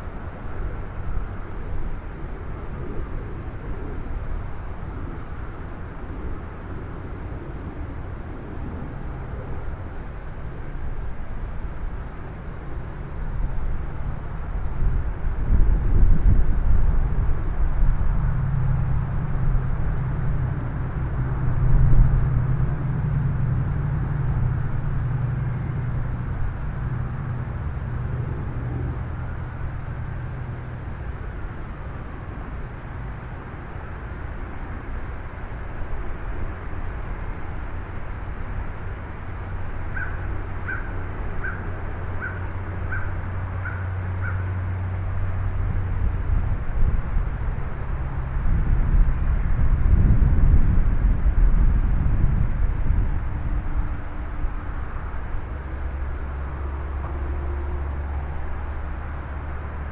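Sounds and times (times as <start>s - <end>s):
gusty wind rumble: 0.0s - 59.9s
gusty wind rushing: 13.4s - 30.0s, 45.4s - 56.4s
bird calling: 39.9s - 44.6s.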